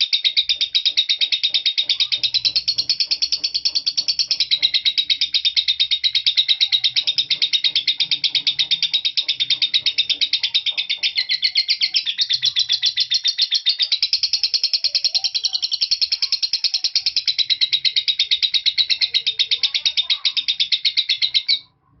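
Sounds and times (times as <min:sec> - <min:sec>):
lovebird shrill chattering chirps: 0:00.0 - 0:21.7.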